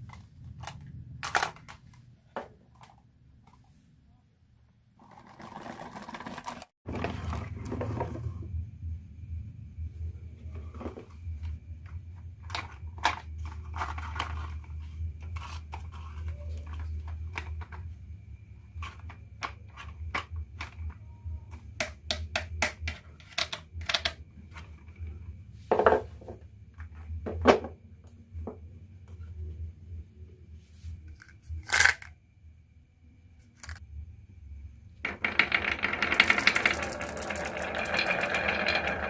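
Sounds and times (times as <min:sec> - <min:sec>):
marbles clicking on wooden run: 0:35.1 - 0:39.0.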